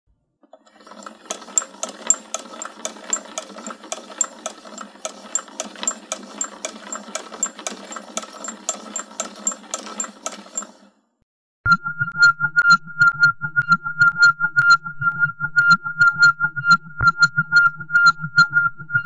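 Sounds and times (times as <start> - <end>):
mechanical clicking: 0.5 - 10.8.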